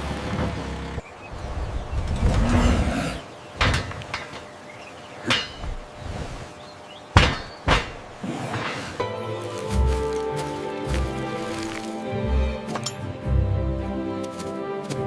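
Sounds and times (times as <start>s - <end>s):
sharp knocks: 7.2s - 8.2s.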